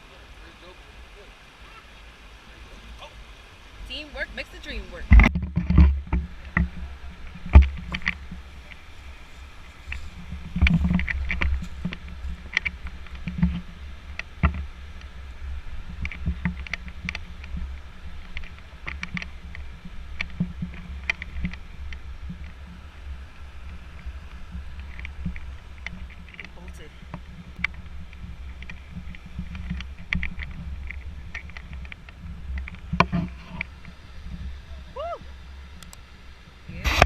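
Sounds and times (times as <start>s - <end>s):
footsteps: 4.4s - 13.7s.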